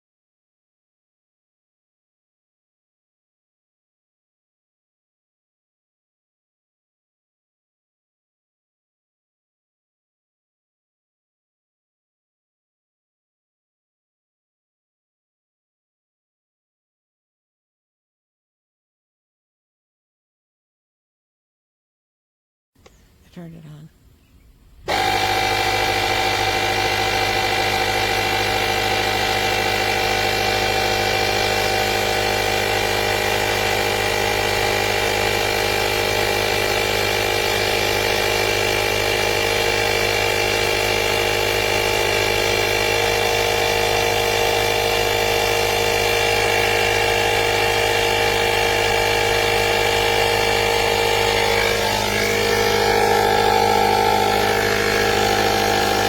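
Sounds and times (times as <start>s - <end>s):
air compressor whining drone: 24.7s - 56.0s.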